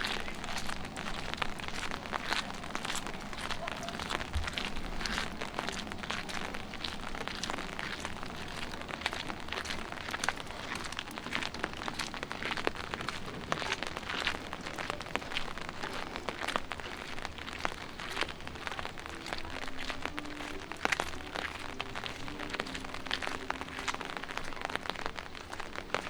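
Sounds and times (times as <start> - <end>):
rain hiss: 0.0 - 26.0
raindrops pattering on hard surfaces: 0.0 - 26.0.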